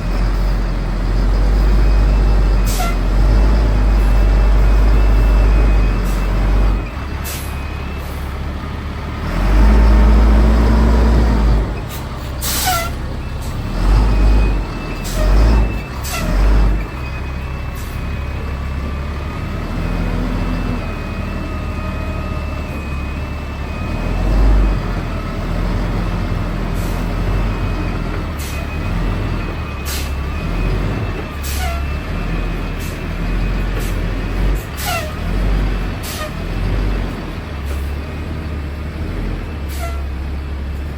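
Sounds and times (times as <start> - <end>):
heavy diesel truck engine: 0.0 - 40.9
air brake hisses: 7.2 - 7.6, 11.9 - 13.0, 29.9 - 30.2, 36.0 - 36.4, 39.7 - 40.1.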